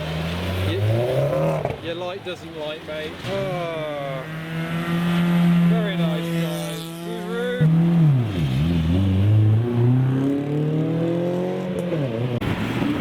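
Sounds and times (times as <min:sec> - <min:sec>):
car engine accelerating: 0:02.9 - 0:13.0.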